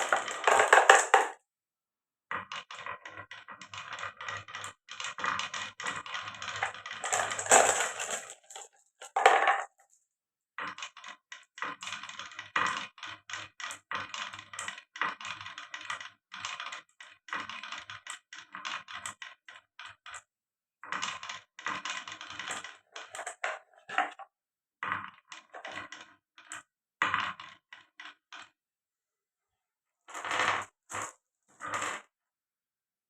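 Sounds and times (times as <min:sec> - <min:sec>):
marbles rolling and clattering: 0:00.0 - 0:01.4, 0:02.3 - 0:10.0, 0:20.9 - 0:28.5, 0:30.1 - 0:32.0.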